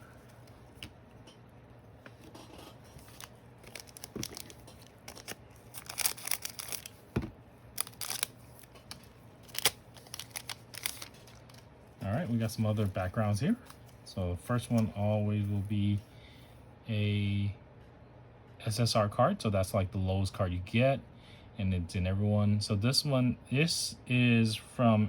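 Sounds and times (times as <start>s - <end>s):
foil wrapper crinkling and tearing: 2.2s - 7.1s, 7.7s - 14.0s.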